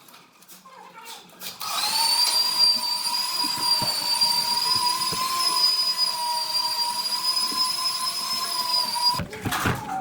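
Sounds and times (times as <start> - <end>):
power tool motor whining: 1.6 - 9.2.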